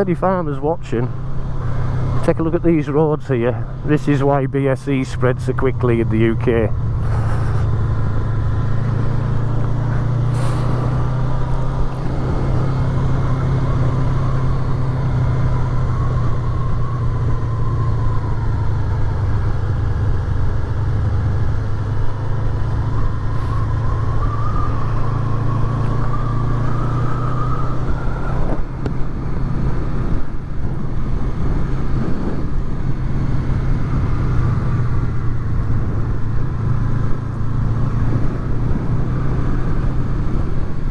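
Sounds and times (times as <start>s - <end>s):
motorcycle engine running: 4.8s - 40.9s.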